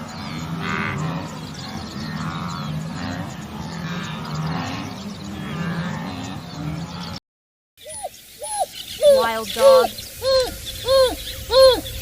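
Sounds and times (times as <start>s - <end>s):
wildebeest grunting: 0.0s - 7.2s.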